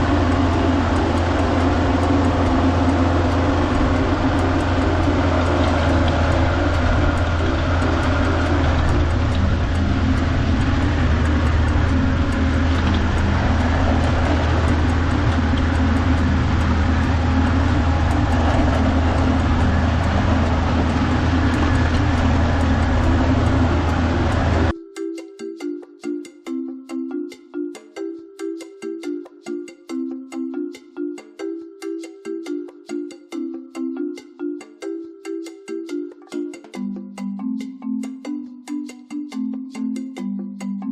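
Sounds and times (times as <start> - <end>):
tractor diesel engine running: 0.0 - 24.7.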